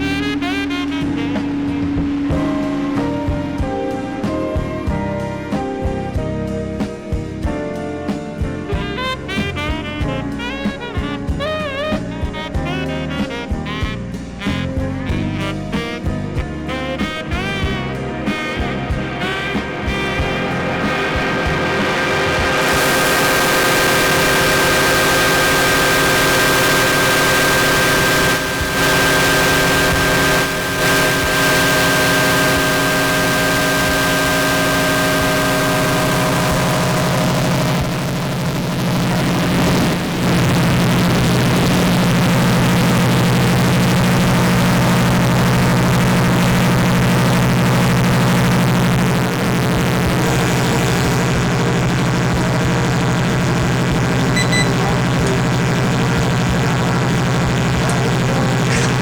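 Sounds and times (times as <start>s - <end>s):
heavy low drone: 0.0s - 59.0s
steady feedback tones: 15.2s - 59.0s.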